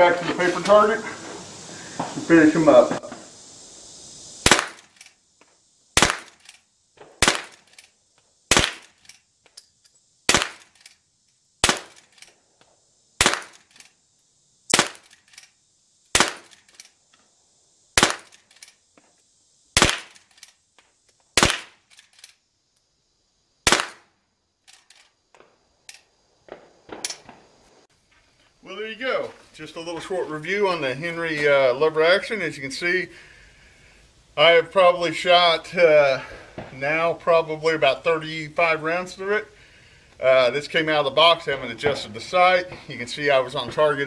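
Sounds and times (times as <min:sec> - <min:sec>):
rifle shots: 0:04.4 - 0:05.1, 0:06.0 - 0:07.9, 0:08.5 - 0:09.1, 0:10.3 - 0:10.9, 0:11.6 - 0:12.3, 0:13.2 - 0:13.9, 0:14.7 - 0:15.4, 0:16.1 - 0:16.8, 0:18.0 - 0:18.6, 0:19.8 - 0:20.4, 0:21.4 - 0:22.0, 0:23.6 - 0:24.1.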